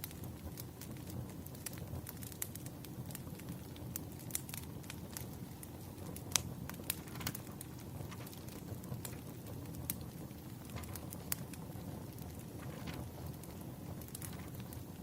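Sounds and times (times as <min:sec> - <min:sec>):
fire rumbling: 0:00.0 - 0:15.0
logs crackling and popping: 0:00.0 - 0:15.0.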